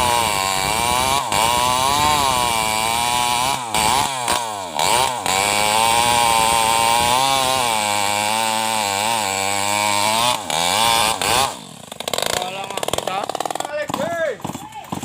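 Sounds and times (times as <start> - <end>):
chainsaw cutting into tree: 0.0 - 15.0.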